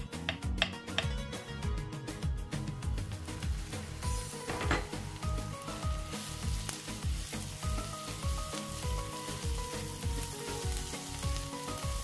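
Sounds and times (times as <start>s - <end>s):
background music with beat: 0.0s - 12.0s
vegetables sizzling in frying pan: 2.9s - 12.0s.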